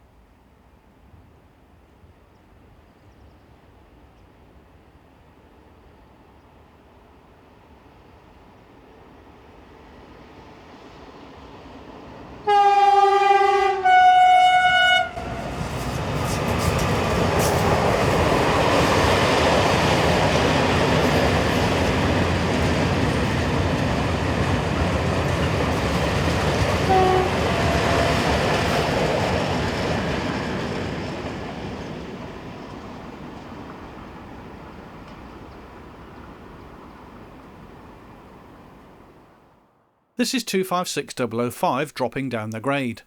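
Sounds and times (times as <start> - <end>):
two-tone locomotive horn: 12.4 - 15.7, 26.8 - 28.3
rumble of train wagons: 14.6 - 39.4.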